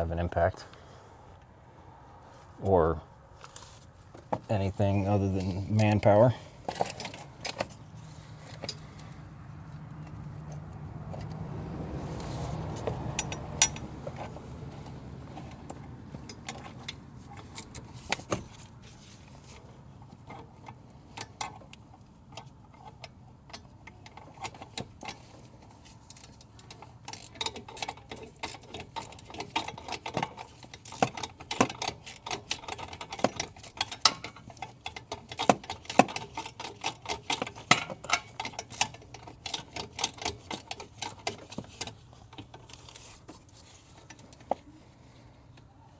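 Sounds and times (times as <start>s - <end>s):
metal tools clinking: 4.8s - 9.2s, 13.1s - 14.4s, 22.4s - 43.1s
hand ratchet clicking: 12.2s - 18.3s, 23.5s - 43.1s.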